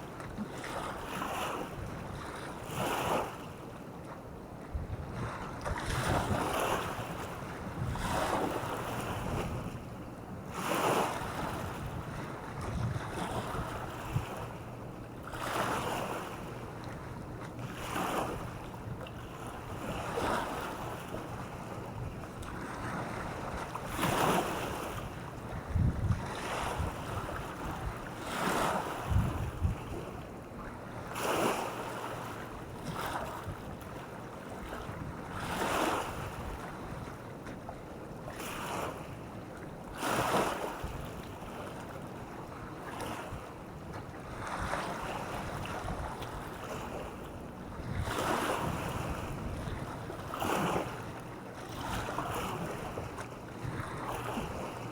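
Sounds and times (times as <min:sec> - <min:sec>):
small waves breaking on shore: 0:00.0 - 0:54.9
wind buffeting microphone: 0:04.7 - 0:08.5, 0:11.3 - 0:14.4, 0:22.8 - 0:28.1, 0:29.0 - 0:30.1, 0:47.7 - 0:50.7.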